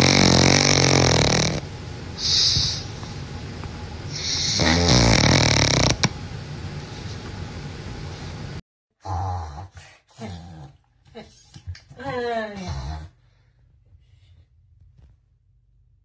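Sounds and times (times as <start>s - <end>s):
dog snoring: 0.0s - 2.9s, 4.1s - 6.2s.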